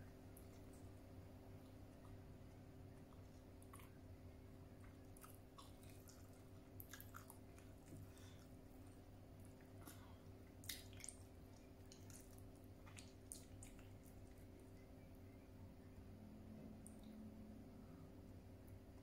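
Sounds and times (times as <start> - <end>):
faint close-up chewing: 0.0 - 16.0
low room tone hum: 0.0 - 19.0
wet mouth clicks and smacks: 9.6 - 14.3.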